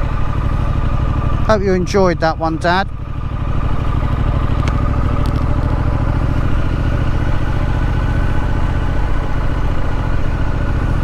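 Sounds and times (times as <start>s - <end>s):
motorcycle engine running steadily: 0.0s - 11.0s.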